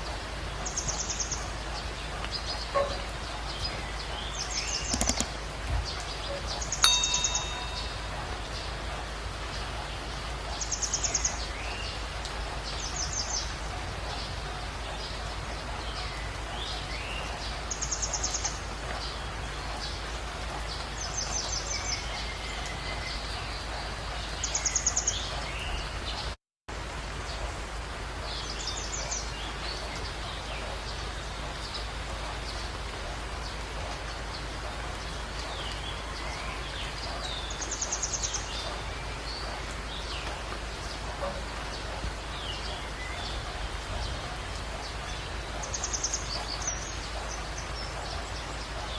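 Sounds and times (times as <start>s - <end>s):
outdoor background hiss: 0.0s - 48.9s
click with ringing tone: 4.9s - 5.3s, 6.8s - 8.4s.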